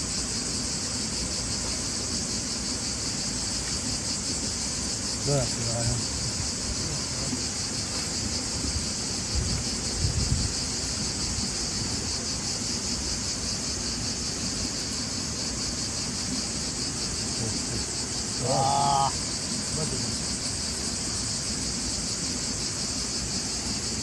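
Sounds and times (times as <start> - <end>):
shrill insect chorus: 0.0 - 24.0.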